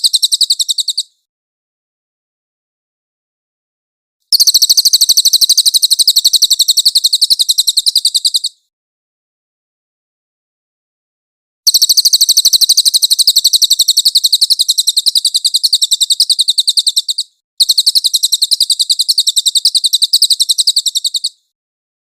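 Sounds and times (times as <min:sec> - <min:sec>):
high-pitched bird trill: 0:00.0 - 0:01.1, 0:04.3 - 0:08.6, 0:11.7 - 0:21.5.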